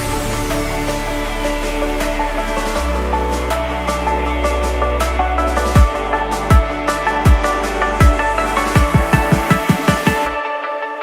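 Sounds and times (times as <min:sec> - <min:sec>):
electronic music with synth: 0:00.0 - 0:11.0
deep kick drum: 0:05.7 - 0:10.4.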